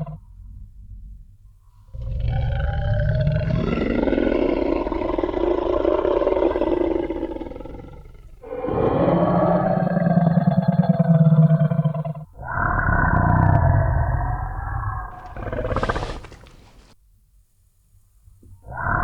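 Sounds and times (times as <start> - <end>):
deep rough monster roar: 2.0 - 11.0, 15.0 - 16.9.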